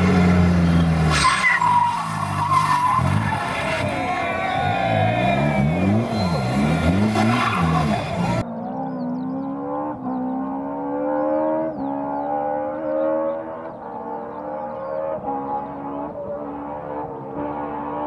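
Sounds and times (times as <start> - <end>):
rally car engine revving: 0.0 - 18.0
distant car accelerating through gears: 3.0 - 18.0.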